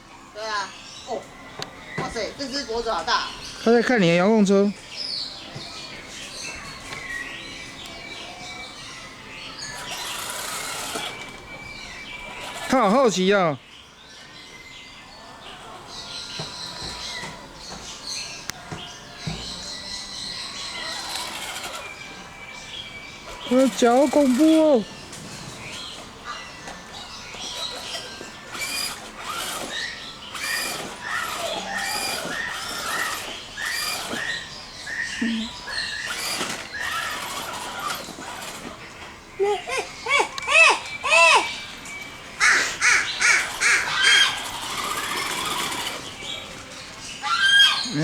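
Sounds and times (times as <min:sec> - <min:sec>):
birds chirping: 0:00.0 - 0:48.0.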